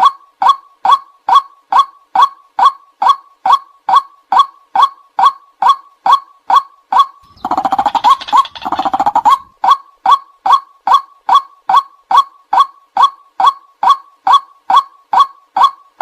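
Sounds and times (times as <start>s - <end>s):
harsh rapid bird chattering: 7.2s - 9.5s
waterhen kwak calls: 7.2s - 9.5s.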